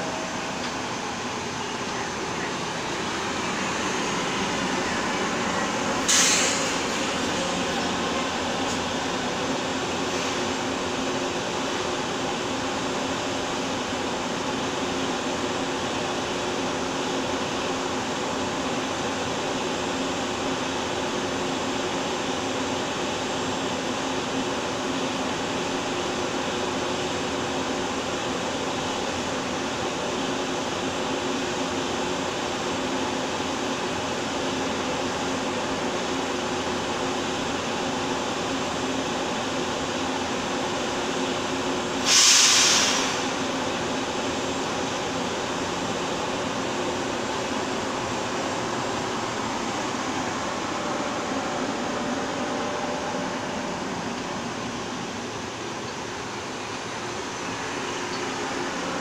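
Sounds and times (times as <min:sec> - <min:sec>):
train air-conditioning hum: 0:00.0 - 0:59.0
loud air hiss: 0:02.6 - 0:10.7, 0:41.8 - 0:46.0.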